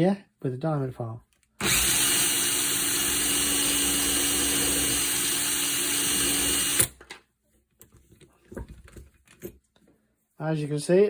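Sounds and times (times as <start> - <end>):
file cutting a screw: 1.6 - 7.0
power drill running steadily: 1.6 - 7.0.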